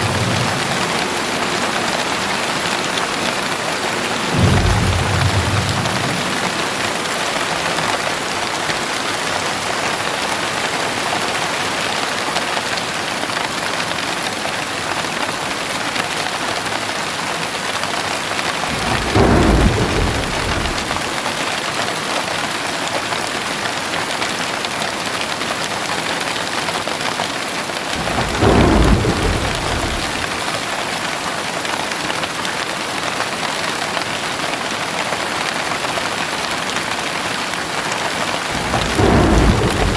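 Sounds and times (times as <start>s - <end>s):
low rolls of thunder: 0.0s - 8.3s, 18.6s - 21.4s, 27.9s - 30.8s, 38.4s - 39.9s
heavy rain pouring: 0.0s - 22.2s, 24.6s - 39.9s.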